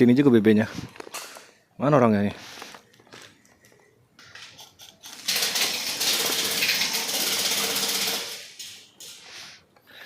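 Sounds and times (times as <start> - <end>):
airsoft rifle full-auto burst: 5.2 - 8.6.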